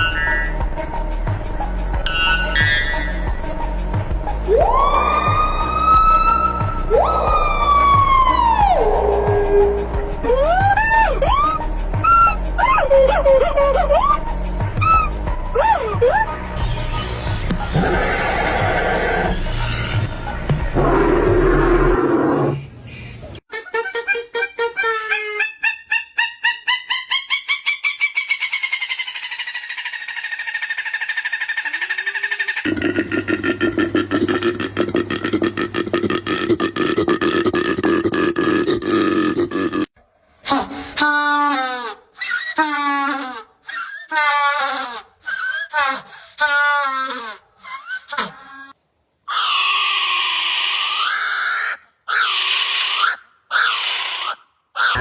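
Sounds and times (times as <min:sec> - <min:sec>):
animal call trilling: 0:10.2 - 0:14.2, 0:14.8 - 0:16.4, 0:24.0 - 0:33.2, 0:49.3 - 0:55.0
canine howling: 0:10.2 - 0:14.2, 0:14.8 - 0:16.4
canine yipping calls: 0:10.3 - 0:16.4, 0:50.7 - 0:55.0.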